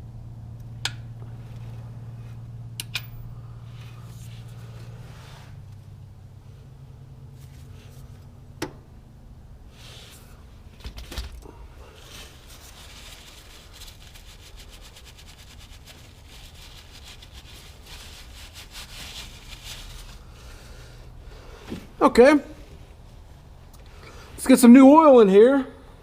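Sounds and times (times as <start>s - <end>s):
steady low hum: 0.0s - 26.0s
rubbing and scraping: 3.7s - 5.8s, 9.7s - 20.9s.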